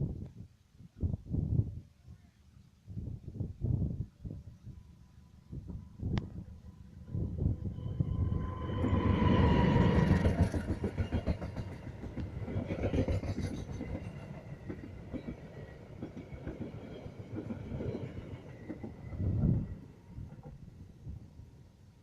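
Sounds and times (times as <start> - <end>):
steady high tone: 6.4 - 11.9
train wheels clattering: 8.1 - 17.9.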